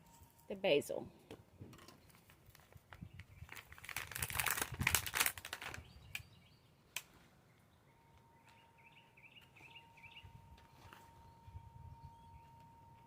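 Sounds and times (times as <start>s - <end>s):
hands rustling plant and soil: 2.0s - 6.0s
bird chirping: 5.8s - 12.8s.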